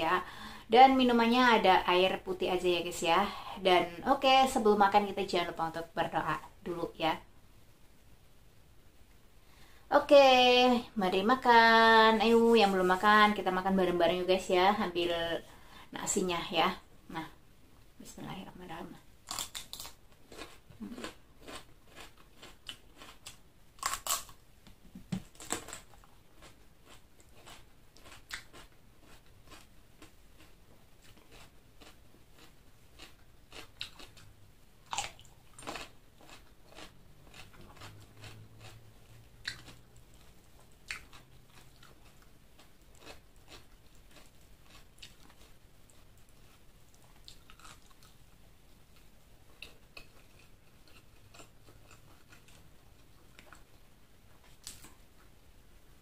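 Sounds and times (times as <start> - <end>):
close chewing and crunching: 19.2 - 24.4, 25.2 - 55.3.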